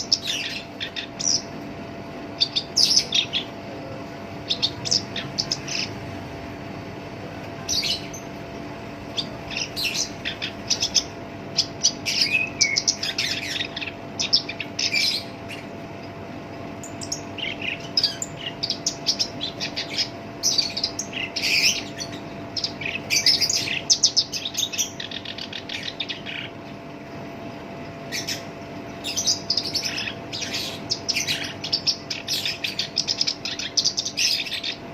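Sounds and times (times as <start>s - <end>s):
warbler singing scratchy phrases: 0.0s - 7.0s, 7.6s - 34.9s
faint steady hum: 0.0s - 34.9s.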